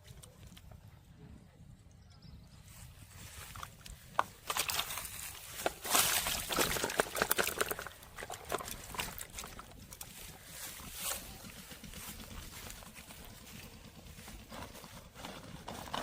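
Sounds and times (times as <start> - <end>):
water splashing and sloshing: 3.5 - 10.3.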